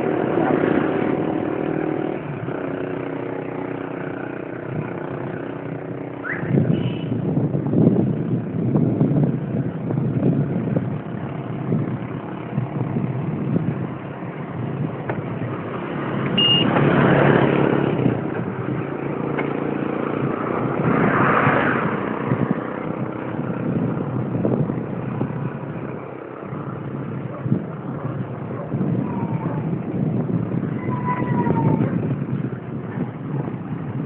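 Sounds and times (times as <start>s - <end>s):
road traffic rumble: 0.0s - 34.0s
vehicles passing: 0.0s - 34.0s
short high beep: 16.4s - 16.7s.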